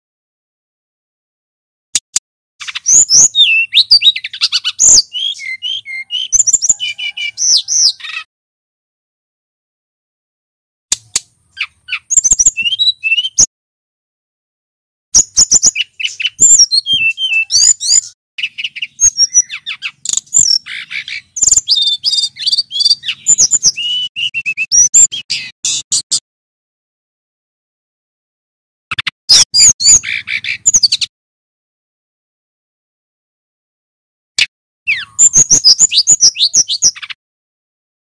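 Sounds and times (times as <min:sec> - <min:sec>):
bird singing chirps and trills: 0:02.6 - 0:08.3, 0:11.0 - 0:13.5, 0:15.2 - 0:26.0, 0:29.3 - 0:31.1, 0:34.9 - 0:37.2.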